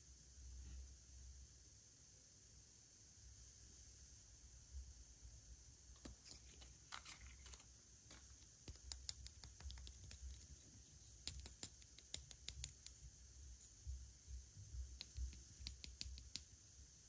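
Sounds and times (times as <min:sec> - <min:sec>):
plastic packaging crackling: 0:06.0 - 0:08.5.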